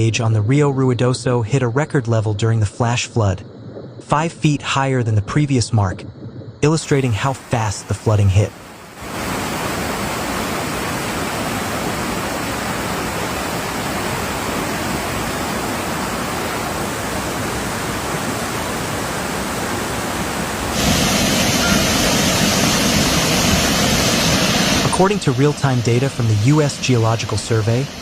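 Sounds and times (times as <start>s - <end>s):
flood water rushing: 6.6s - 28.0s.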